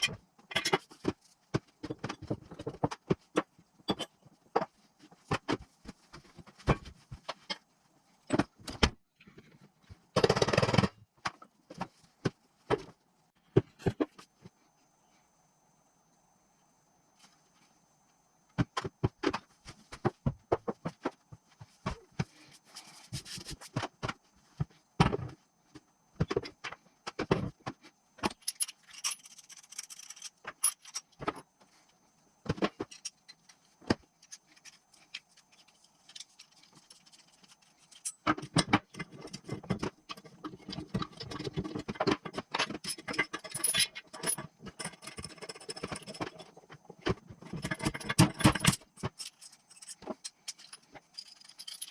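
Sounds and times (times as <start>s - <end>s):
metal tools clinking and rattling: 28.3s - 31.4s, 36.1s - 46.6s, 47.4s - 51.9s.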